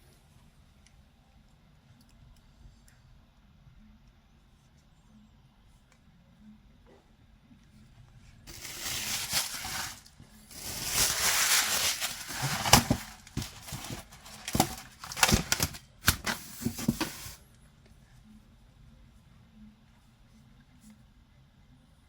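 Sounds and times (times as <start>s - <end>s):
packaging crinkles and clicks: 8.5s - 17.1s
wrapping rustling: 8.5s - 17.4s.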